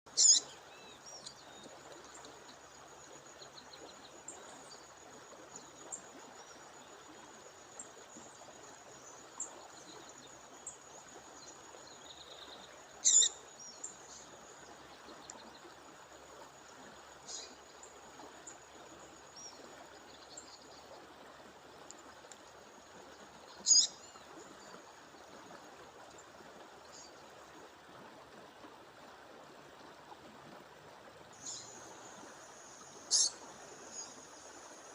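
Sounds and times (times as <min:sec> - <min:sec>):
songbird sharp calls: 0:00.1 - 0:00.6, 0:13.0 - 0:13.4, 0:23.6 - 0:24.0, 0:33.1 - 0:34.1.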